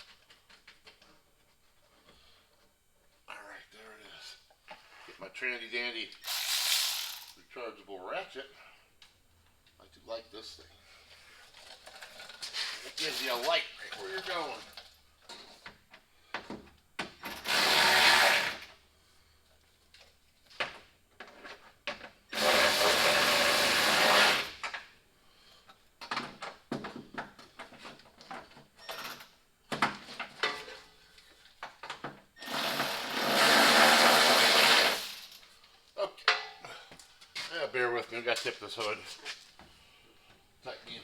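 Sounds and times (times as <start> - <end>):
electric ratchet running: 6.2 - 7.4, 17.2 - 18.7, 22.3 - 24.6, 32.4 - 35.4.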